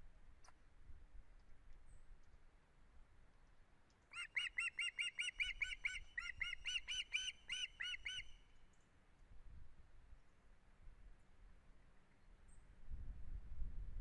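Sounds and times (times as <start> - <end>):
bird high squeaky piping calls: 4.1 - 8.4.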